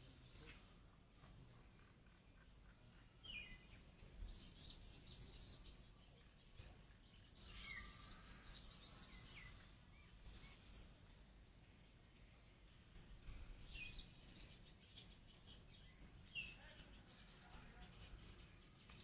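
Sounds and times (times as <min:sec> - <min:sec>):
bird twittering chirps: 0:02.0 - 0:11.0, 0:12.9 - 0:19.0.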